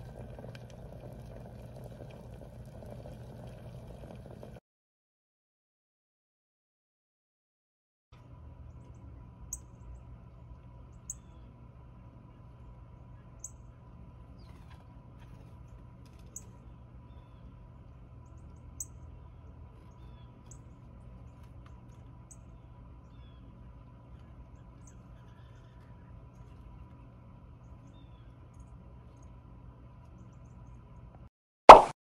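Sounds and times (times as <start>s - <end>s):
songbird chip calls: 11.1s - 11.5s.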